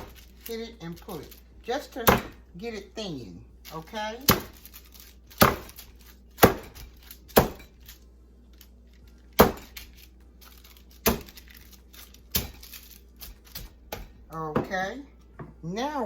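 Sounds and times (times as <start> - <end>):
meat being pounded: 2.0 - 2.4, 4.2 - 4.6, 5.4 - 5.8, 6.4 - 7.7, 9.4 - 9.8, 11.0 - 11.4, 12.3 - 12.6, 13.2 - 14.8.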